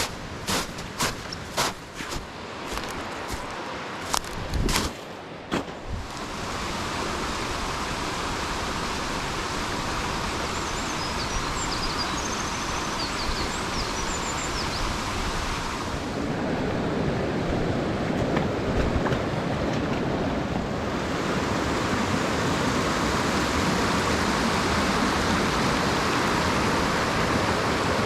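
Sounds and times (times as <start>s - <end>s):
stream rushing over rocks: 5.3s - 28.0s.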